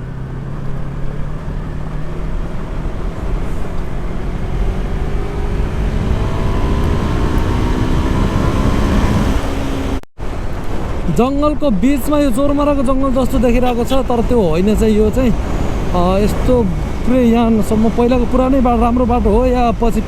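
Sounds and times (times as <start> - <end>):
motorcycle engine accelerating: 0.0 - 10.0, 14.6 - 20.0
road rumble: 0.0 - 20.0
wind noise: 1.4 - 20.0.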